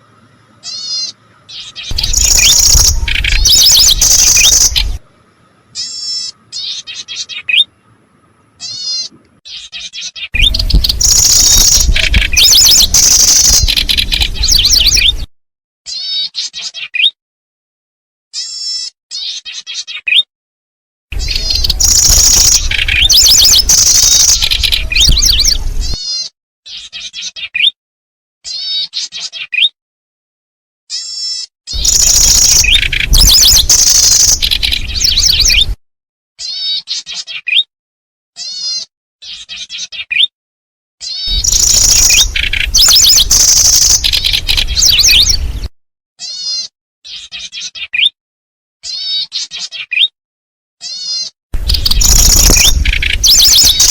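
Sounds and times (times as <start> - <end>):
soft bird chirping: 0.0 - 15.2, 21.2 - 26.2, 31.8 - 35.8, 41.1 - 45.7, 51.1 - 53.9
bird call buzzy trills: 41.3 - 45.2, 51.0 - 53.9.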